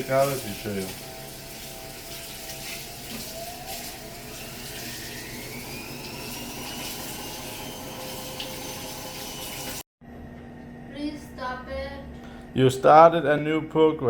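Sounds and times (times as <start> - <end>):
water moving in washing machine: 0.0 - 9.8
washing machine motor whine: 0.0 - 14.0.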